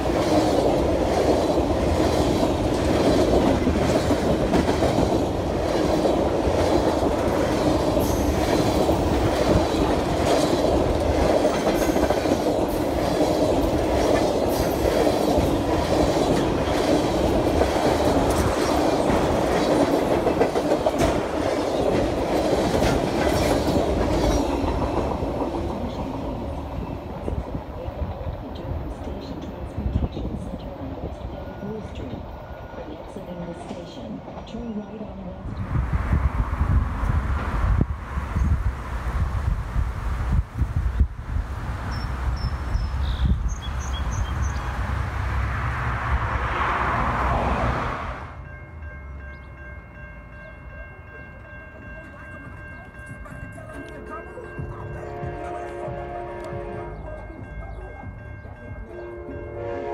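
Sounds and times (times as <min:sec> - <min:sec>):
train rolling past: 0:00.0 - 0:59.9
train wheel clicks: 0:00.3 - 0:26.0.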